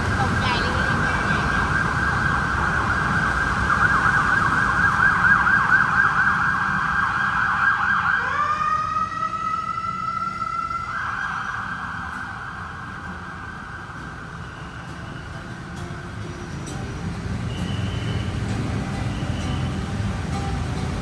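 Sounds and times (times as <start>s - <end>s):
emergency vehicle siren: 0.0s - 21.0s
street traffic rumbling: 0.0s - 21.0s.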